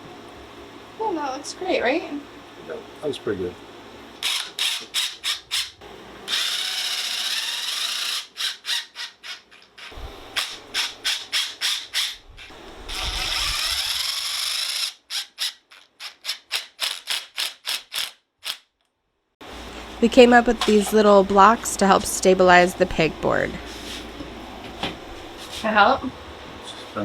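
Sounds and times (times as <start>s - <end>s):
fast even tool strokes: 4.2s - 18.6s
power tool running: 4.2s - 18.6s.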